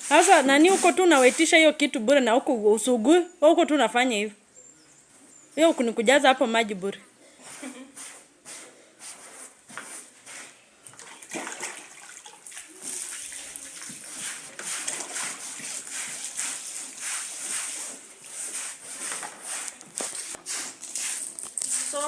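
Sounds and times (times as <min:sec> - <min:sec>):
water splashing on carpet: 0:11.0 - 0:22.0.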